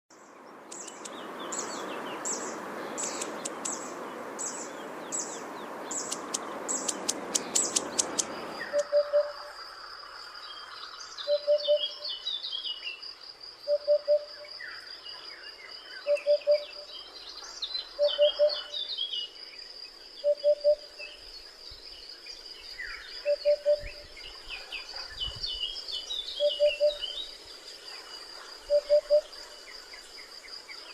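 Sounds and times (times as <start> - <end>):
small birds chirping: 0.1 - 9.3
steady hiss: 0.6 - 8.7.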